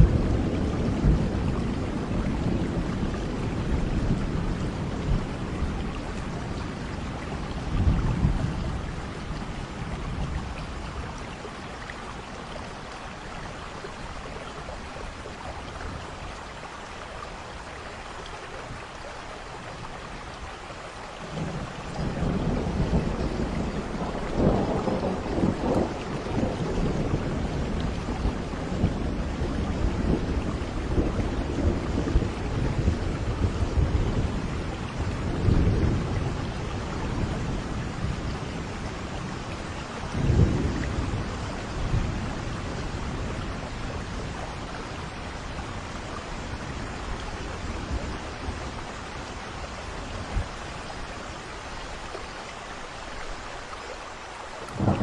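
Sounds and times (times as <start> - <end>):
rolling thunder: 0.0 - 11.5, 21.2 - 51.1, 54.7 - 55.0
steady rain: 0.0 - 55.0.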